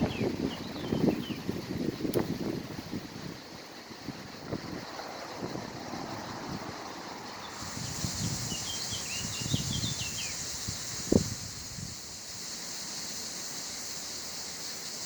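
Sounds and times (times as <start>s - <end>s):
small bird chirping: 0.0s - 2.2s, 7.2s - 14.0s
wind buffeting microphone: 0.0s - 12.5s
steady high hiss: 0.0s - 15.0s.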